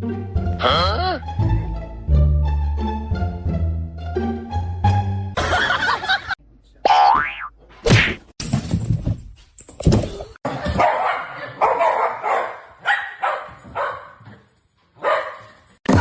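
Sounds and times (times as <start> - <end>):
dog barking: 10.6 - 14.4, 15.0 - 15.7.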